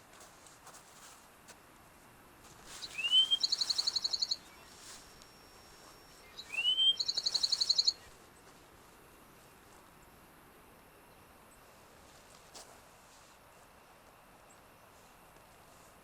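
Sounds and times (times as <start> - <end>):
songbird whistle and trill: 2.7 - 8.2.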